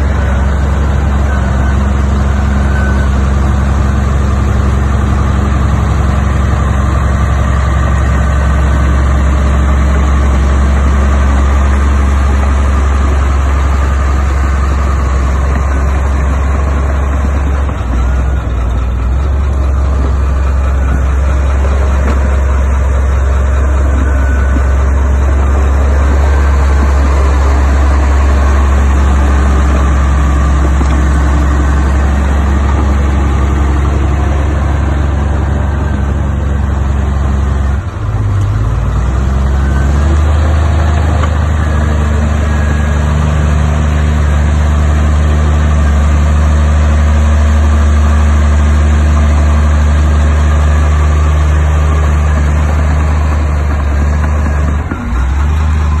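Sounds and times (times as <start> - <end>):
heavy diesel engine humming: 0.0 - 56.0.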